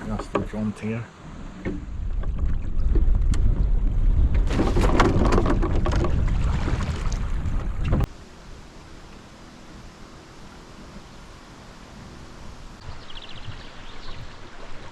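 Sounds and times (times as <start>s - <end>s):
water splashing along hull: 0.0s - 14.9s
wind buffeting microphone: 1.5s - 8.1s.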